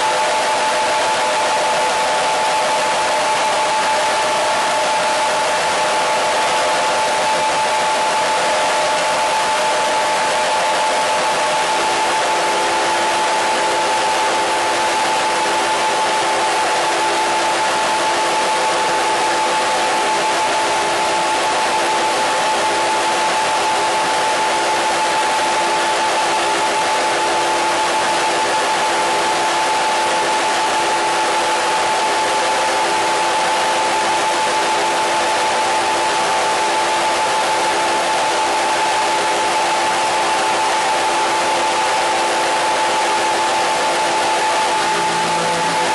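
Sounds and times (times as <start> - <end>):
steady tones: 38.6 - 45.9.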